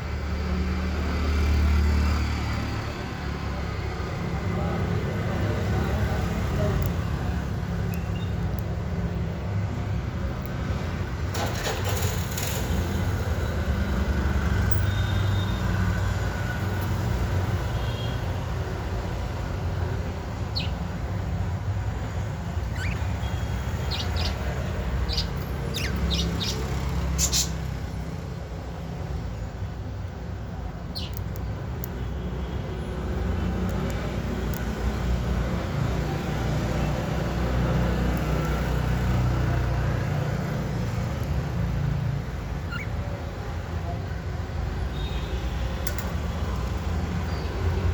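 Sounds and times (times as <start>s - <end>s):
budgerigar chirps: 22.7s - 23.1s, 42.6s - 43.0s.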